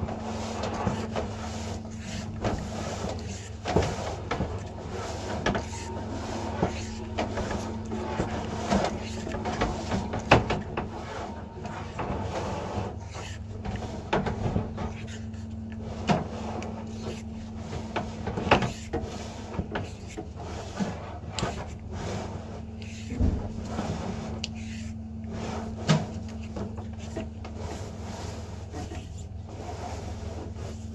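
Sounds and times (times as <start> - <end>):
steady electrical hum: 0.0 - 30.9.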